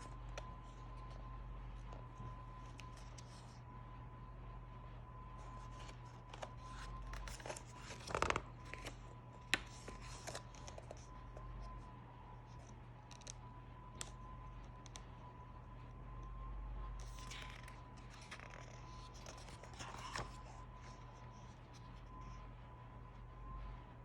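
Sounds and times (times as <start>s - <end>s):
irregular scratching and scraping: 0.0s - 3.6s, 17.0s - 22.4s
faint steady hum: 0.0s - 24.0s.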